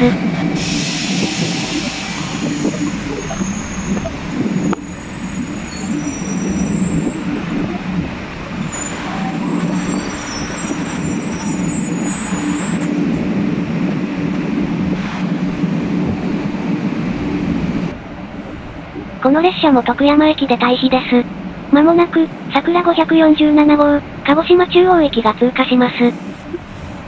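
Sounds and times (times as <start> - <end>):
train humming: 0.0 - 27.0
high-pitched squeals: 0.6 - 7.8, 8.5 - 12.9.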